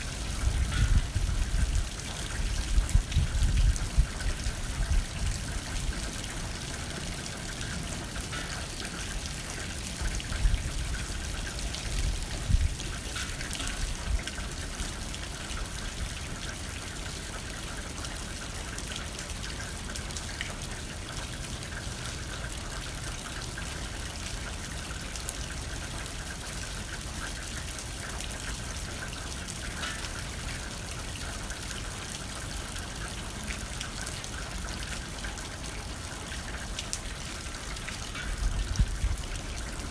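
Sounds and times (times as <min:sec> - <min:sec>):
wind blowing: 0:00.0 - 0:05.6, 0:38.1 - 0:39.9
rain hitting a window: 0:00.0 - 0:39.9.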